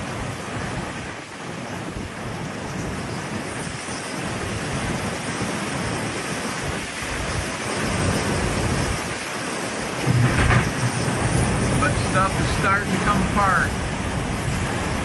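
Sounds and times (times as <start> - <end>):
driving rain: 0.0 - 15.0
wind howling: 0.0 - 15.0
wind rumbling on microphone: 0.0 - 15.0.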